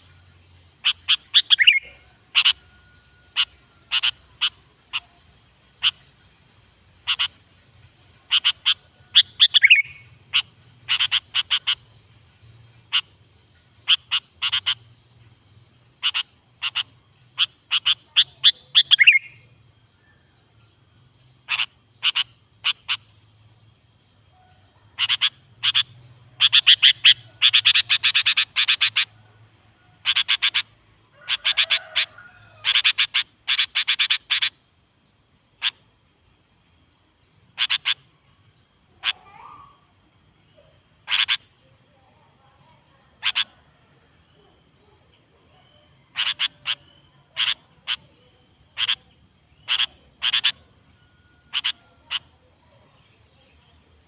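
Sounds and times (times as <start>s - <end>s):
bird chattering chirps: 0.8s - 2.6s, 3.3s - 5.2s, 7.0s - 7.4s, 8.3s - 11.9s, 13.8s - 14.9s, 16.0s - 19.4s, 21.5s - 23.2s, 25.0s - 29.2s, 30.0s - 34.6s, 37.6s - 38.1s, 40.6s - 41.6s, 43.2s - 43.5s, 46.0s - 50.7s, 51.5s - 52.4s
faint steady high tone: 1.6s - 4.4s.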